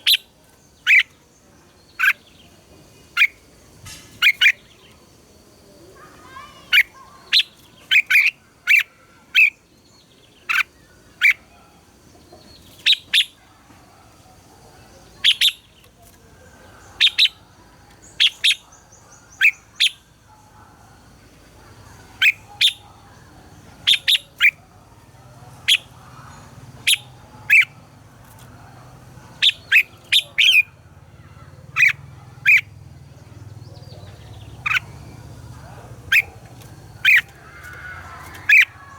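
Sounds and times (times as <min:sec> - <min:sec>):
bulbuls singing: 0:00.0 - 0:38.9
faint low hum: 0:10.1 - 0:38.9.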